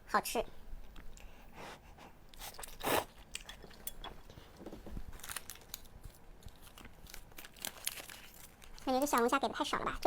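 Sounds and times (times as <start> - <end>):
person chewing with crunches: 2.3 - 4.6.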